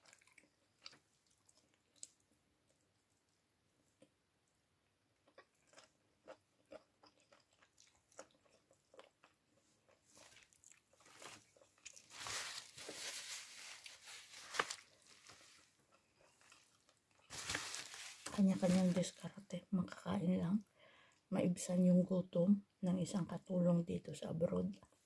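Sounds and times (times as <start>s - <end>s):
chewing and mouth clicks: 0.0s - 4.2s, 5.2s - 12.1s, 15.8s - 17.3s.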